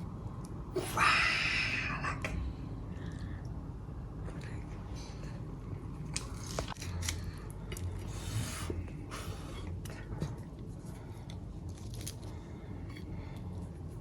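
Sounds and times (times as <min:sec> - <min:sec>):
crispy chicken skin crackling: 0:11.6 - 0:12.5.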